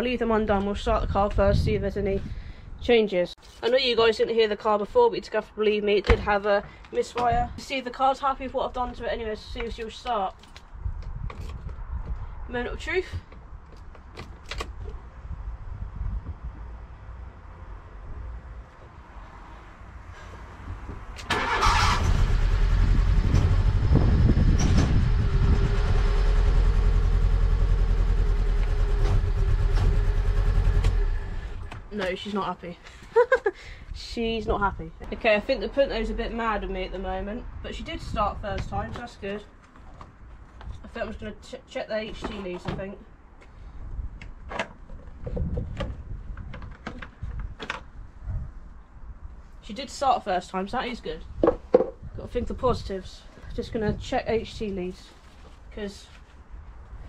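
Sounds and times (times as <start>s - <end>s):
car engine cranking: 21.2s - 31.8s
engine running rough with misfire: 21.3s - 31.6s
low rumble: 22.0s - 31.8s
handling clicks and clunks: 44.2s - 47.9s.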